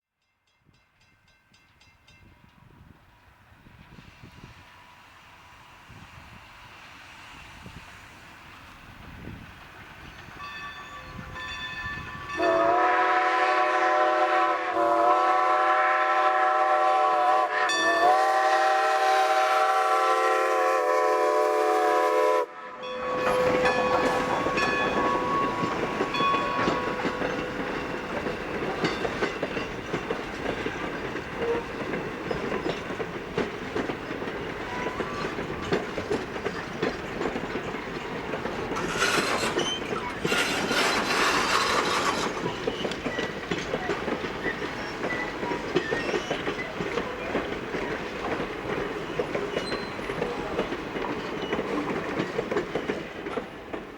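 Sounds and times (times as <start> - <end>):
train rumbling past: 1.5 - 53.9
wheels clattering on rail joints: 23.0 - 53.9.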